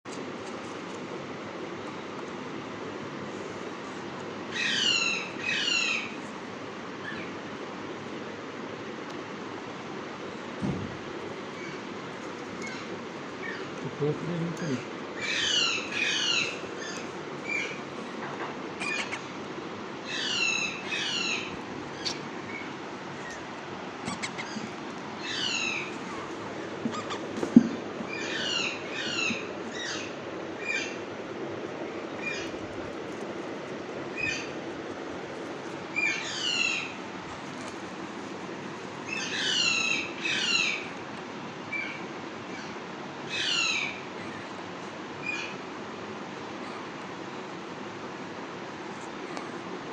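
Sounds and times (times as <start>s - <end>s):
steady low hum: 0.0s - 49.9s
parrot harsh calls: 12.6s - 17.8s, 18.8s - 19.4s, 20.0s - 27.5s
parrot chirps: 18.8s - 19.3s, 24.0s - 26.3s, 26.9s - 27.3s
parrot squawking: 18.8s - 19.4s, 24.0s - 27.5s.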